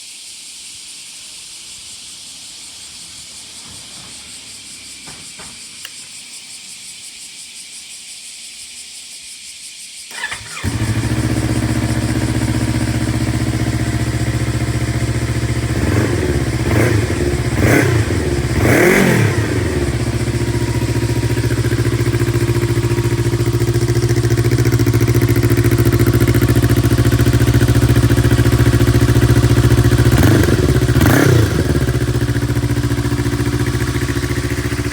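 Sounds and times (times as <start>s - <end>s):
steady hiss: 0.0s - 10.1s, 19.8s - 30.2s
engine throttle blips: 10.1s - 34.9s
motorcycle engine starting and idling: 10.1s - 34.9s.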